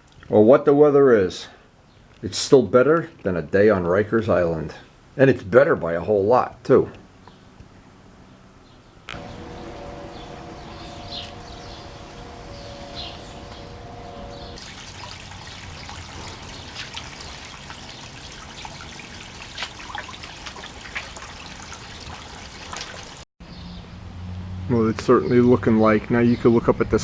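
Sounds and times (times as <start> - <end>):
low hum: 9.1 - 19.2
water trickling and splashing: 14.5 - 23.3.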